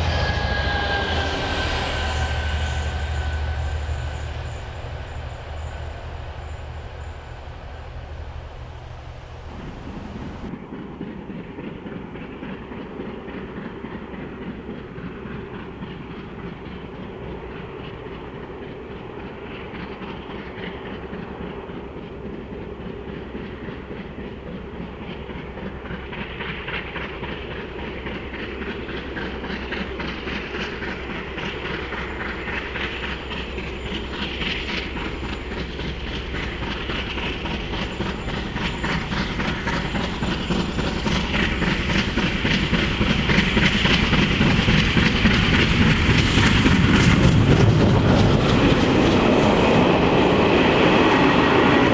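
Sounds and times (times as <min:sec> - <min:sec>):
high-pitched rattle: 0:00.0 - 0:10.5, 0:30.4 - 0:50.5
steam train running: 0:00.0 - 0:10.7, 0:11.5 - 0:51.9
wheels clicking over rails: 0:01.2 - 0:10.5, 0:29.7 - 0:50.6.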